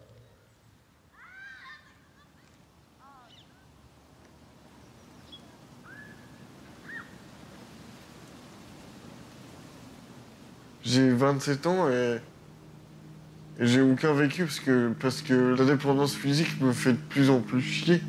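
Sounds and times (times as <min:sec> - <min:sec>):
bird calls: 0:00.0 - 0:03.8, 0:04.5 - 0:07.5
low steady background noise: 0:00.0 - 0:18.0.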